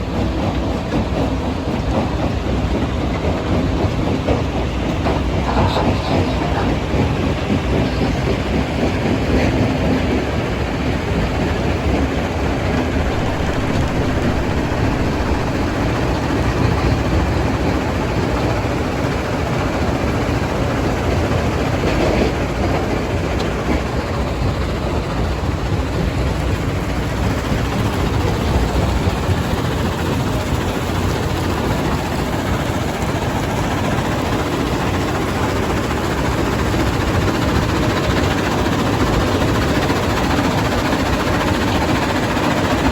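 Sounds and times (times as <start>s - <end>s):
heavy diesel machinery: 0.0s - 42.9s
rock-crushing plant running: 12.9s - 16.1s.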